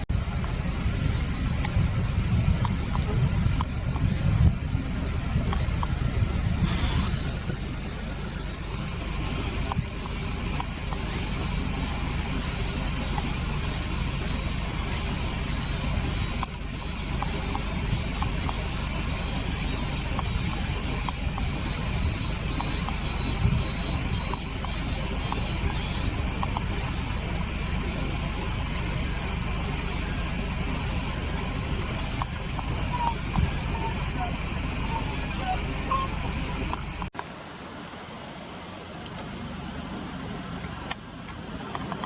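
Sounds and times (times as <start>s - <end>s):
low rumble: 0.0s - 37.1s
insect chirping in pulses: 0.2s - 37.1s
insects shrilling: 4.9s - 37.1s.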